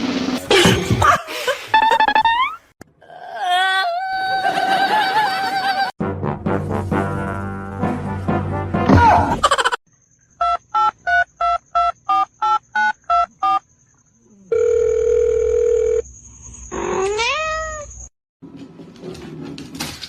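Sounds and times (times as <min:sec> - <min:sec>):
steady phone line tone: 0:14.5 - 0:16.0
cat meowing: 0:17.0 - 0:17.9.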